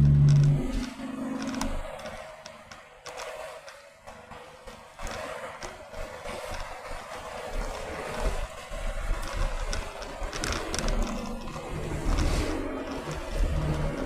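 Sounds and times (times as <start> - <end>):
wind rushing over microphone: 4.7 - 14.0.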